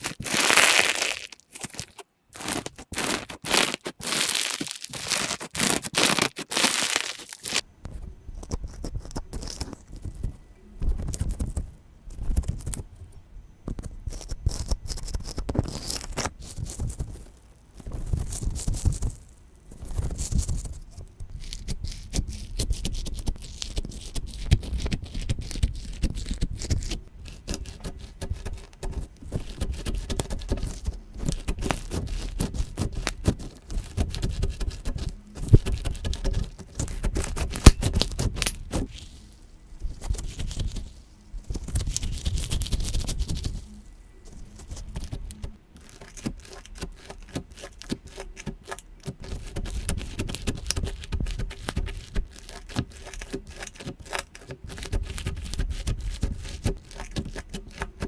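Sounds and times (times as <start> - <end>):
slime squeezed wet crackling: 0.0 - 7.6.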